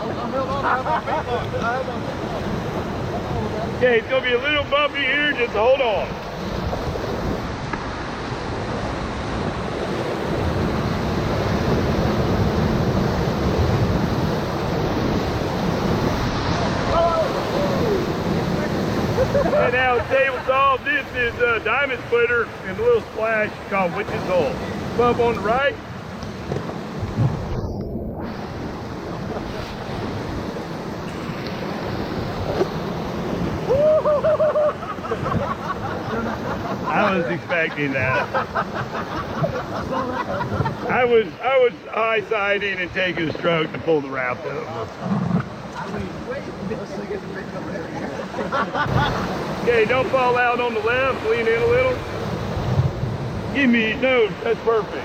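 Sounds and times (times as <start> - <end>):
whitewater rushing and splashing: 0.0 - 55.0
wind on microphone: 6.1 - 21.8, 22.4 - 36.9, 51.0 - 54.4
person yelling: 33.7 - 34.3.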